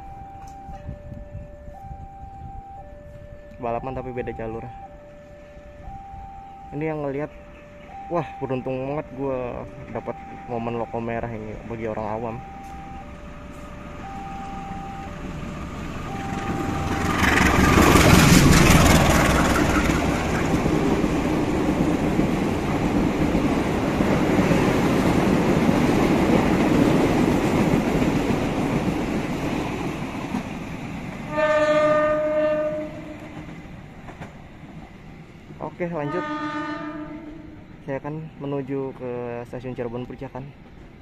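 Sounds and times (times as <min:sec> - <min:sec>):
locomotive engine passing: 0:01.8 - 0:41.0
coaches rumbling past: 0:14.0 - 0:29.0
wheels clattering: 0:15.4 - 0:31.3
train horn blast: 0:31.3 - 0:33.5, 0:36.0 - 0:37.8.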